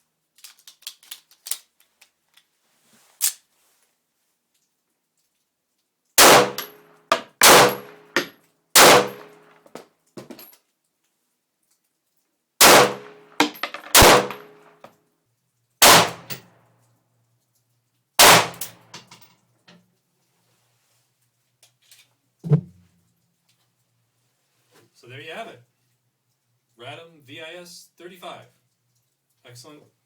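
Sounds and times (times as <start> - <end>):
pistol shots: 6.2 - 9.4, 12.6 - 14.7, 15.8 - 16.4, 18.2 - 18.8.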